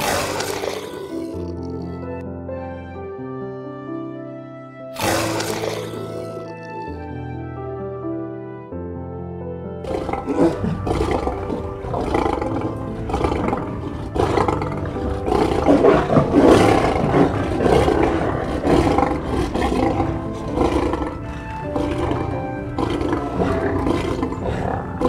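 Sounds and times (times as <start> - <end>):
lion growling: 0.0 - 2.2, 5.0 - 7.0, 9.8 - 25.0
soft background music: 0.0 - 25.0.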